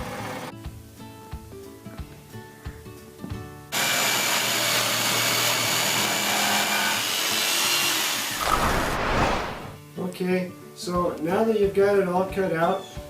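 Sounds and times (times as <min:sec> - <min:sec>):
power saw cutting wood: 0:03.8 - 0:09.0.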